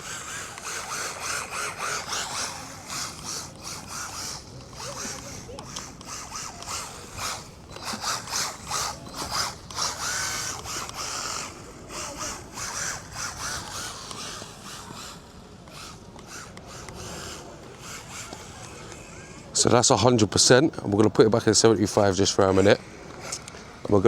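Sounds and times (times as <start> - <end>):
electric motor whining: 0.0 - 24.0.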